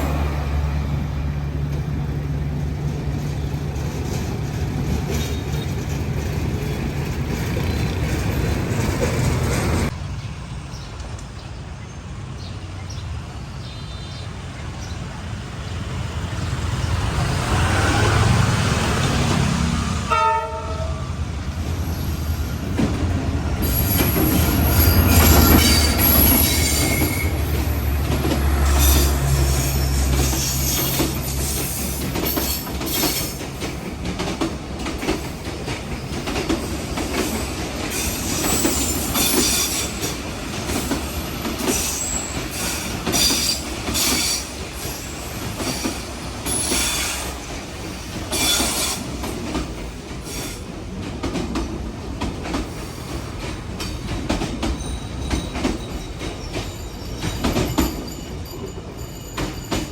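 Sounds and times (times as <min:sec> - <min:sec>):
wheels squealing: 0:23.6 - 0:33.4, 0:36.0 - 0:49.3
wheels clicking over rail joints: 0:30.0 - 0:59.9.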